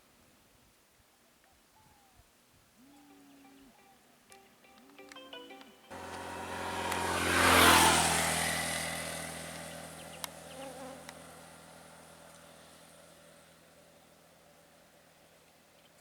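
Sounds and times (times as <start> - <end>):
small-engined vehicle passing by: 5.9 - 15.5.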